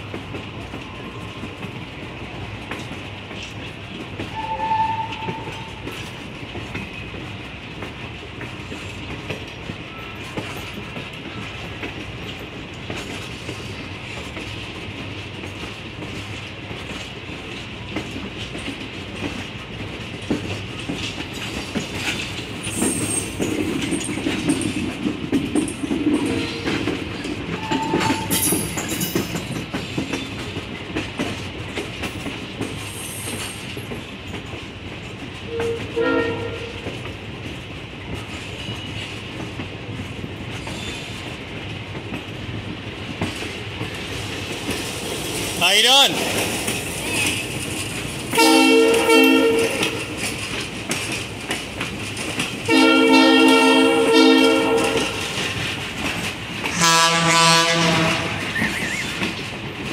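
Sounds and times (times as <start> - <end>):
train rumble: 0.0 - 59.9
wheels clicking over rail joints: 0.0 - 59.9
train horn toot: 4.3 - 5.8, 27.6 - 28.4, 35.5 - 36.9, 48.3 - 50.2, 52.7 - 55.2, 56.7 - 58.6
faint wheel squeals: 58.5 - 59.2.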